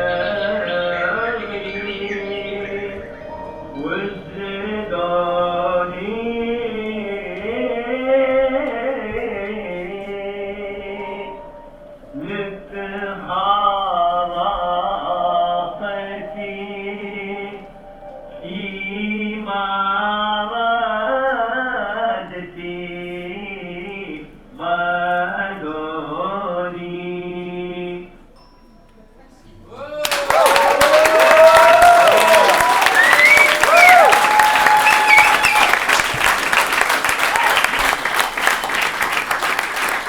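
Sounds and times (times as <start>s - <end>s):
sustained low drone: 0.0s - 8.6s, 10.1s - 20.6s
chant-like wordless melody: 0.0s - 28.4s.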